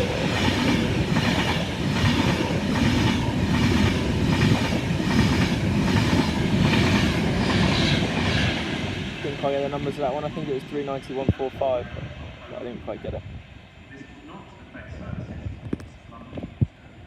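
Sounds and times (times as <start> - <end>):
electric train passing: 0.0 - 15.3.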